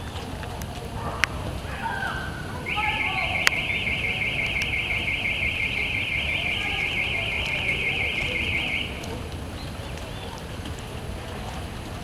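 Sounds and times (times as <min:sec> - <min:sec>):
car alarm warbling: 0:02.6 - 0:09.2.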